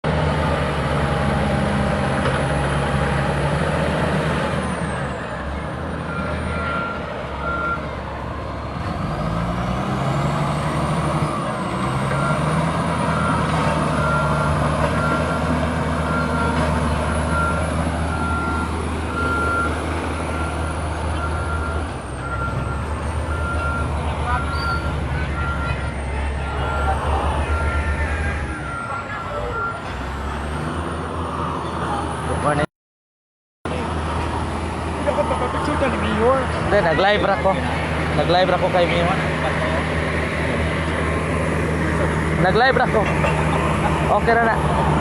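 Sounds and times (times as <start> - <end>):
bulldozer diesel engine under load: 0.0 - 32.7, 33.7 - 45.0
reversing alarm beeping: 6.1 - 7.9, 12.0 - 29.9.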